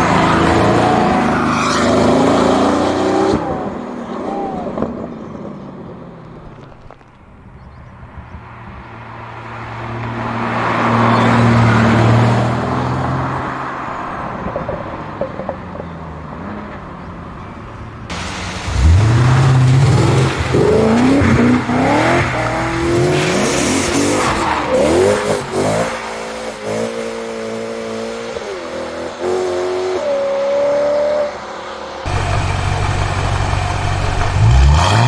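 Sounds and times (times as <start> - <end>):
engine revving and accelerating: 18.6 - 31.4, 32.0 - 35.0
sports car engine running: 32.1 - 35.0.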